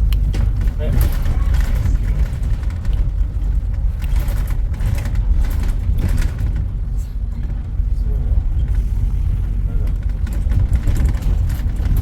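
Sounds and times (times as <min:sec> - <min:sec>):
faint knocks and rattles: 0:00.0 - 0:12.0
traffic rumble: 0:00.0 - 0:12.0.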